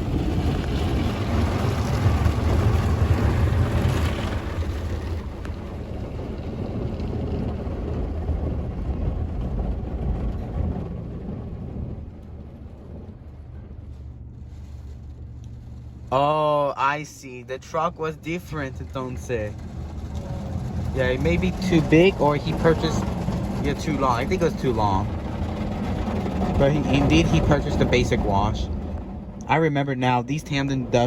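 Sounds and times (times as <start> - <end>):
water spraying onto car: 0.0 - 10.0, 14.3 - 29.4
car wash machinery rumble: 0.0 - 31.0.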